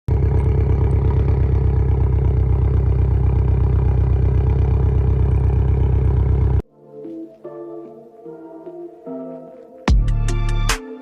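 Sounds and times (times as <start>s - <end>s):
car engine idling: 0.1s - 6.6s.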